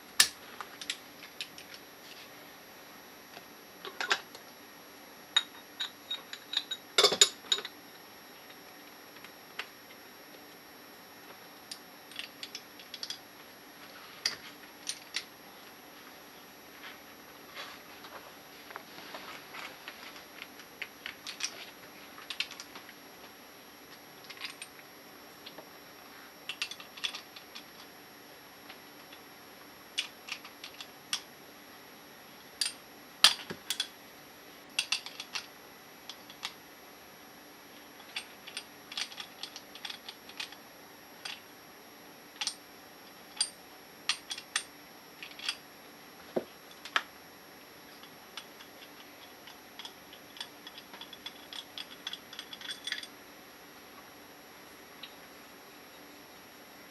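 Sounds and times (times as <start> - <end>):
metal parts clinking: 49.4 - 53.1.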